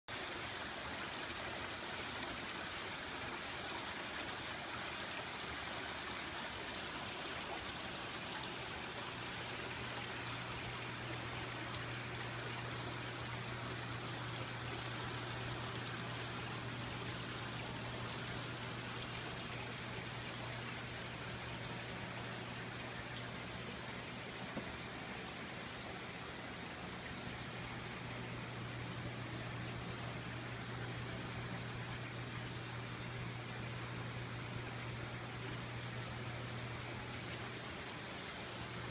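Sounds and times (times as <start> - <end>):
steady low hum: 8.3 - 37.8.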